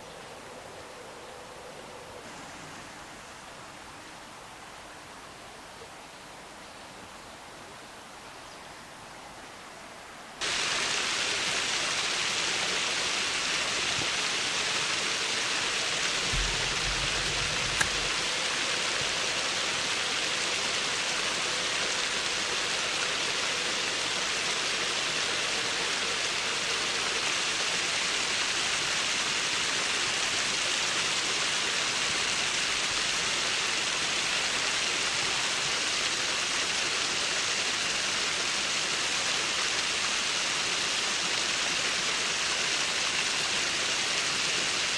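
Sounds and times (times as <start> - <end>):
river water rushing over concrete: 9.9 - 44.9
low bump: 16.3 - 18.2.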